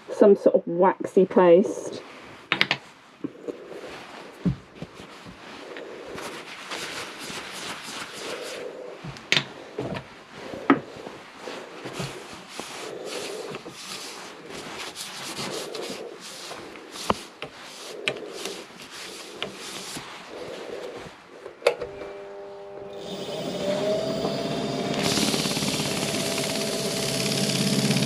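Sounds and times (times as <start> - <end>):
rubbing and handling noises: 1.4 - 21.7
lathe motor whine: 21.8 - 28.0.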